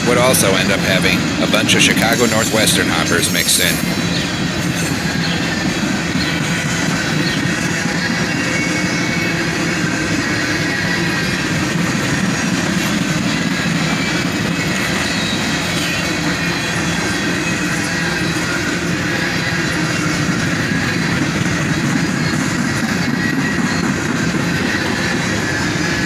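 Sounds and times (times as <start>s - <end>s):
freight train rolling past: 0.0s - 26.0s
high ringing from wheels: 1.9s - 6.5s.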